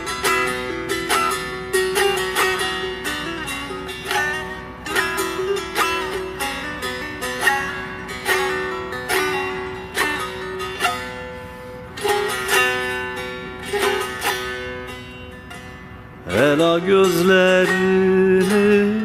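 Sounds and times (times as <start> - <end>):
plucked lute notes: 0.0 - 19.0
steady sustained tone: 0.0 - 19.0.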